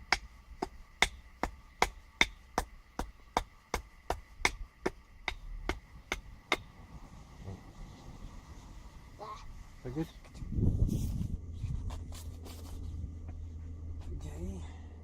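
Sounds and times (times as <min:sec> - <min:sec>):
stick hammering blade into log: 0:00.0 - 0:06.7.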